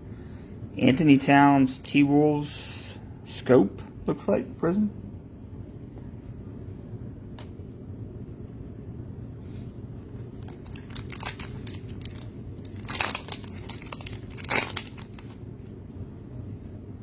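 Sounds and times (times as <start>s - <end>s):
low steady hum: 0.0s - 17.0s
foil wrapper crinkling and tearing: 10.2s - 15.4s.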